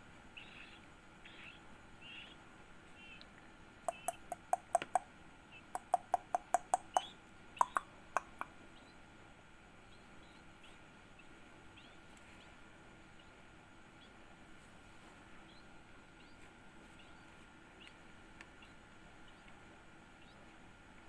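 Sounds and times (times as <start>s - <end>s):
bird chick chirping: 0.3s - 3.3s, 3.9s - 9.1s, 9.8s - 14.3s, 15.3s - 20.6s
sharp clicks: 3.9s - 5.0s, 5.8s - 8.5s.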